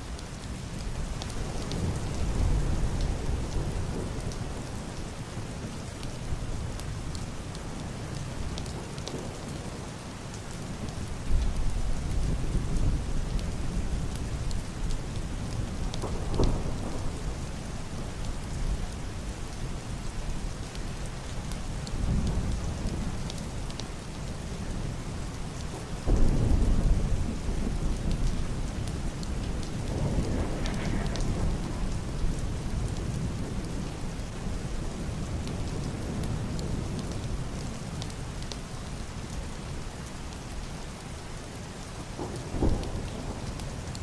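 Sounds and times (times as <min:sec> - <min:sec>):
heavy rain on roof and window: 0:00.0 - 0:44.0
muffled thunder rumbling: 0:11.5 - 0:19.0, 0:24.6 - 0:37.8, 0:42.0 - 0:44.0.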